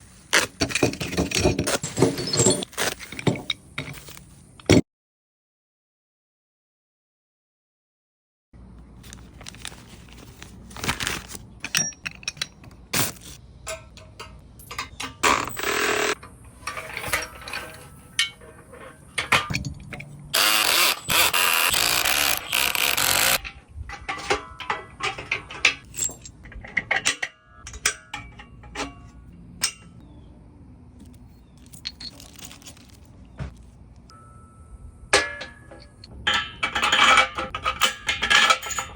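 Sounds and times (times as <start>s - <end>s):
metalwork knocks and scrapes: 0.4s - 4.8s, 11.5s - 30.0s, 35.1s - 38.9s.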